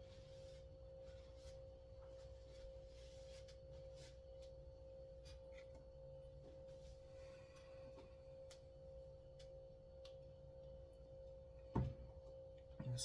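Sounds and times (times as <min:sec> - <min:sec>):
faint steady hum: 0:00.0 - 0:13.0
light clicks of small parts: 0:07.6 - 0:10.8.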